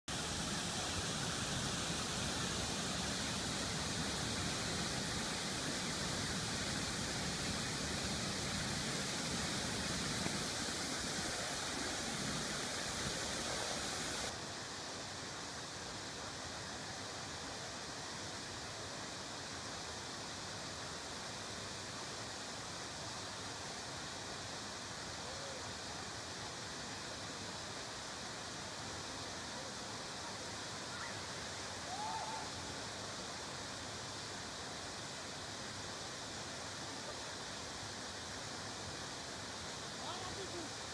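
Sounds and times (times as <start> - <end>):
waterfall roaring: 0.1 - 14.4.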